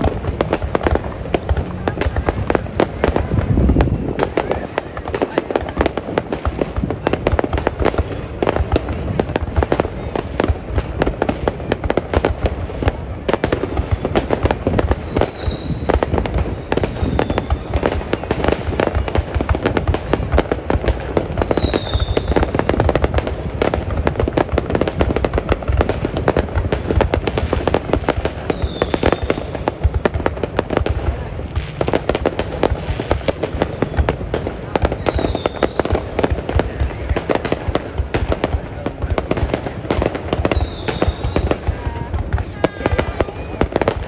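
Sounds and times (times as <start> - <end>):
fireworks bangs and crackles: 0.0 - 44.0
falling firework whistle: 14.7 - 19.7, 21.3 - 22.9, 28.4 - 29.5, 34.9 - 38.0, 40.4 - 44.0.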